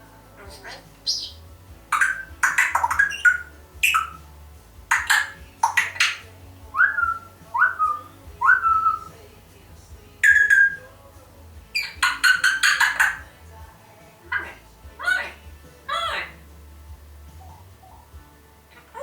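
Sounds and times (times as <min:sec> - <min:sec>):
parrot squawking: 0:00.4 - 0:04.2, 0:04.9 - 0:09.1, 0:10.2 - 0:10.8, 0:11.8 - 0:13.3, 0:14.3 - 0:16.4
parrot whistling: 0:00.6 - 0:04.2, 0:04.9 - 0:06.2, 0:06.8 - 0:09.1, 0:10.2 - 0:10.9, 0:11.8 - 0:13.2.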